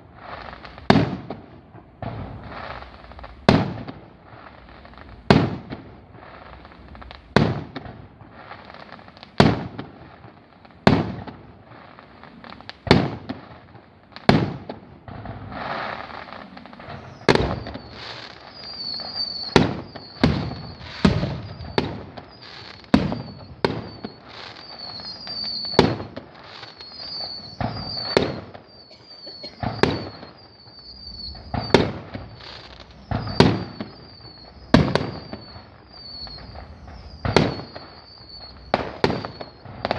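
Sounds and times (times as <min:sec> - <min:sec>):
fireworks bangs with echo: 0:00.0 - 0:39.9.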